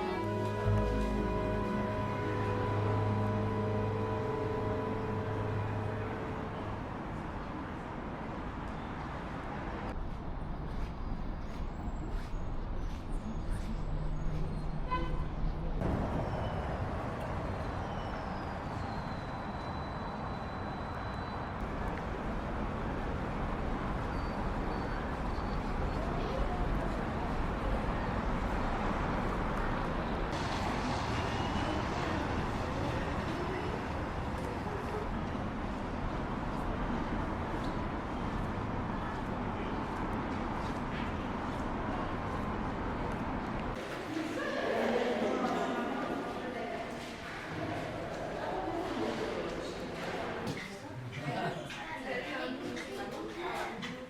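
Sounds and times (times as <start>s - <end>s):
faint voices: 0.0s - 7.8s
steady ambient noise: 0.0s - 14.2s
city traffic rumble and hiss: 0.0s - 53.9s.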